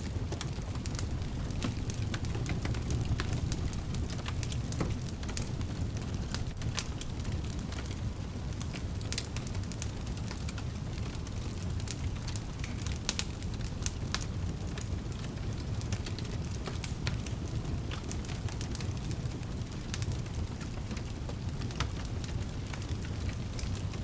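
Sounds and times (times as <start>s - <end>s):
fire crackling and popping: 0.0s - 24.0s
fire rumbling in fireplace: 0.0s - 24.0s.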